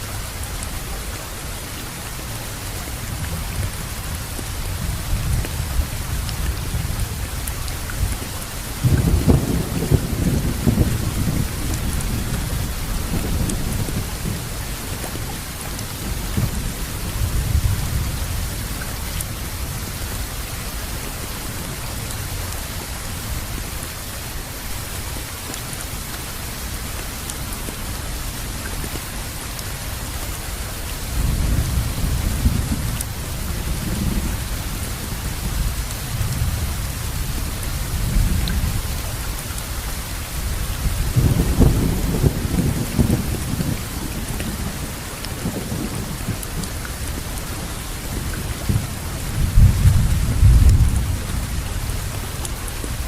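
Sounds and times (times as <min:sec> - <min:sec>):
heavy rainfall: 0:00.0 - 0:53.0
distant thunder rumbling: 0:08.0 - 0:20.4, 0:40.7 - 0:53.0.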